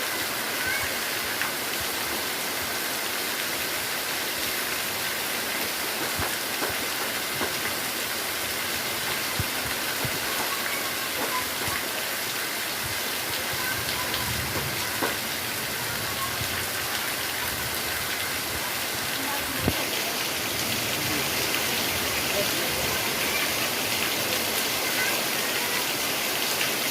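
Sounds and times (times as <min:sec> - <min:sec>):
heavy rain hissing: 0:00.0 - 0:26.9
raindrop impacts: 0:05.6 - 0:08.0, 0:08.7 - 0:12.0, 0:12.8 - 0:24.5.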